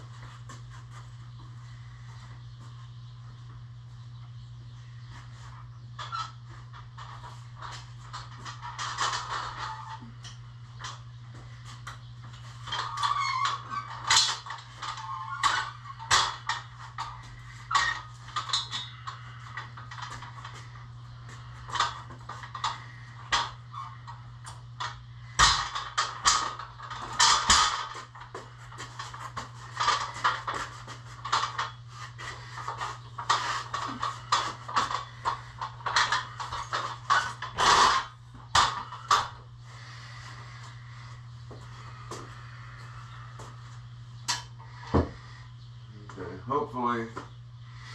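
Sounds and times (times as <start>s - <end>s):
steady low hum: 0.0s - 47.9s
knocks and clatters: 6.0s - 39.4s.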